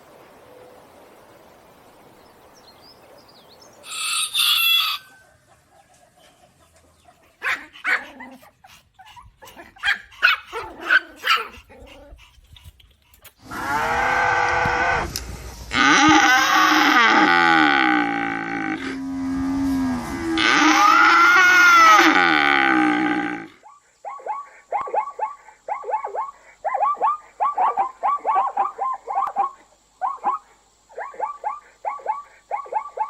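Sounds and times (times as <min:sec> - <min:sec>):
rooster crowing: 0:03.8 - 0:05.5, 0:15.8 - 0:23.4
short animal calls: 0:15.7 - 0:19.0.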